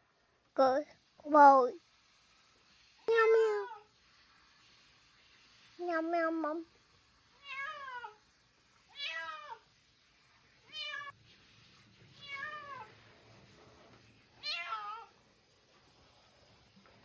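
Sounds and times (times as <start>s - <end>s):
cat meowing: 7.4s - 8.2s, 8.9s - 9.7s, 12.2s - 12.9s, 14.4s - 15.1s.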